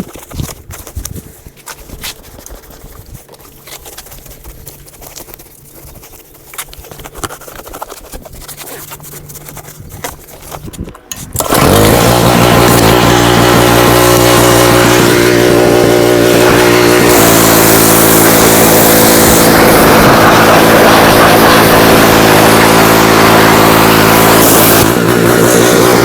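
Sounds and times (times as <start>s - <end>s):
dirt bike engine running: 10.5s - 26.0s.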